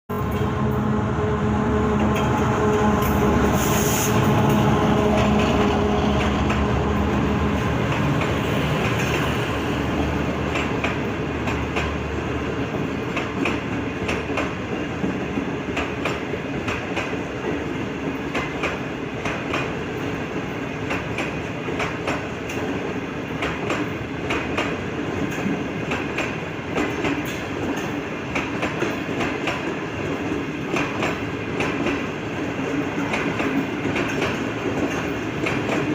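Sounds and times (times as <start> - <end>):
locomotive hum: 0.1 - 14.8
train wheels clacking on rail joints: 1.8 - 35.9.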